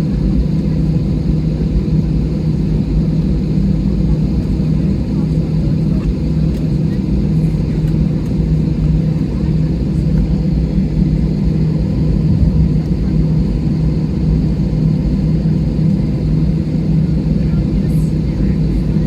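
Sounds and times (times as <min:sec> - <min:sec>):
airliner cabin drone: 0:00.0 - 0:19.0.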